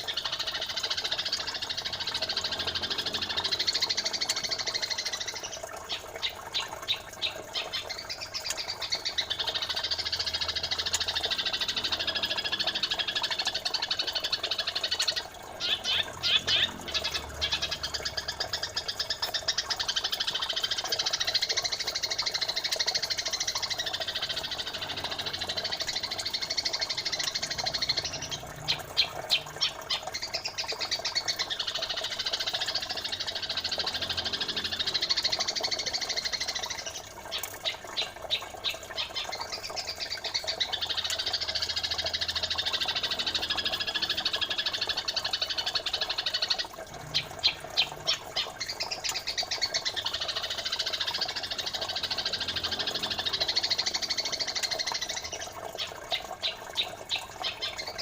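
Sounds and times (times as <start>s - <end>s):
high bird chattering: 0.0s - 37.0s.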